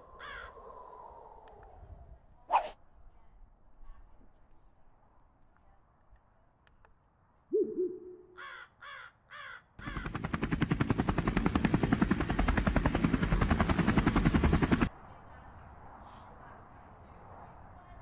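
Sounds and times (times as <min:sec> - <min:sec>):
crow cawing: 0:00.2 - 0:00.6, 0:08.4 - 0:10.2
helicopter rotor blades chopping: 0:09.8 - 0:14.9.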